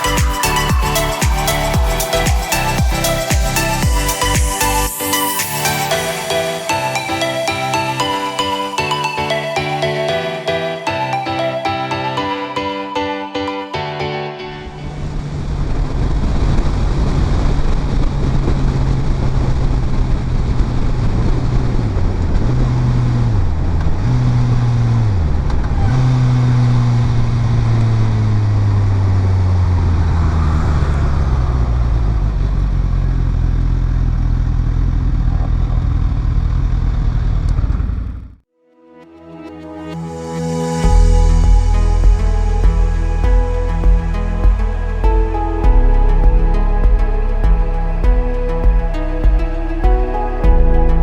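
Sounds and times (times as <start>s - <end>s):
wind rush: 14.6s - 24.1s
motorcycle engine running: 31.7s - 38.4s.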